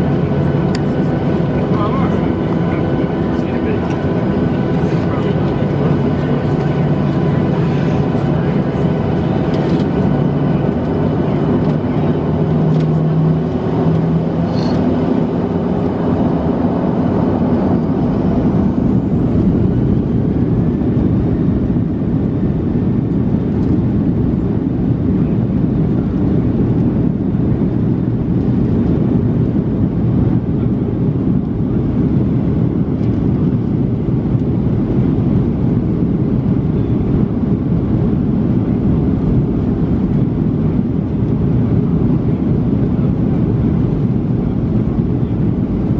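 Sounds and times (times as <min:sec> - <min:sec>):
jet engines rumbling inside cabin: 0:00.0 - 0:45.9.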